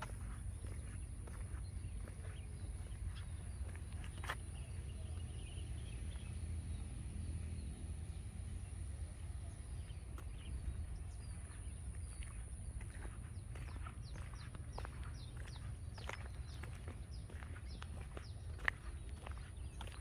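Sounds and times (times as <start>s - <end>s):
footstep clicks: 0.0s - 4.6s
steady low rumble: 0.0s - 20.0s.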